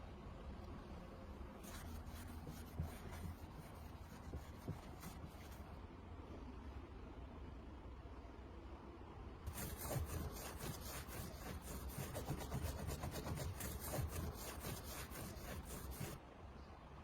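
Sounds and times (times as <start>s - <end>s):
rapid scraping strokes: 9.5s - 16.2s.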